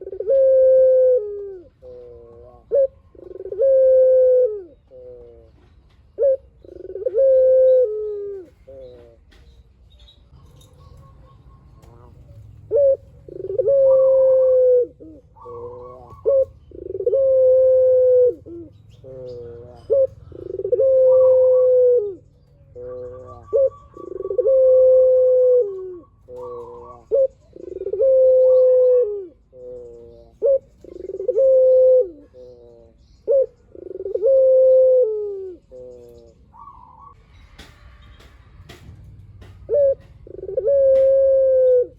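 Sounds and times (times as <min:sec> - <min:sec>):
dove cooing: 0:00.0 - 0:09.5, 0:10.3 - 0:37.2, 0:39.4 - 0:41.9.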